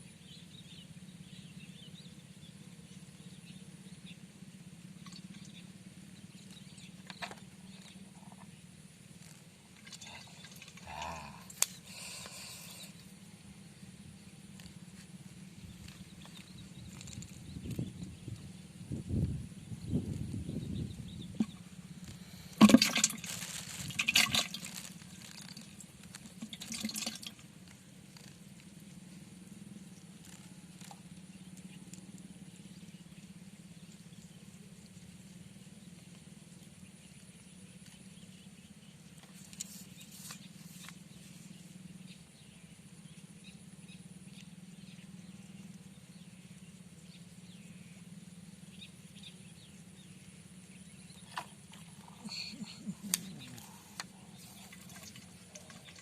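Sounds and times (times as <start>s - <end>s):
faint background hum: 0.0s - 56.0s
water splashing: 22.5s - 27.4s, 54.4s - 56.0s.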